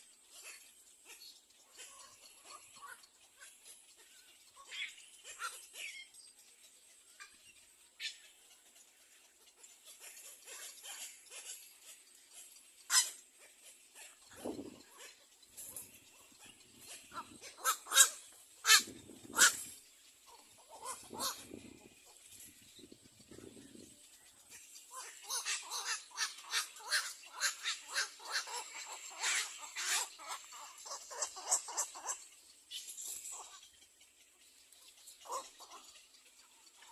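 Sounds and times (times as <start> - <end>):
egret nestlings calling harshly: 16.2 - 19.7, 24.9 - 32.2.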